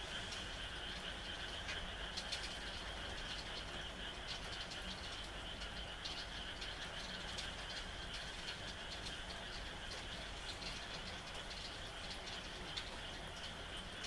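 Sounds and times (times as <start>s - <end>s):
frog chorus: 0.0s - 14.0s
rain: 0.0s - 14.0s
drips ticking: 0.1s - 14.0s.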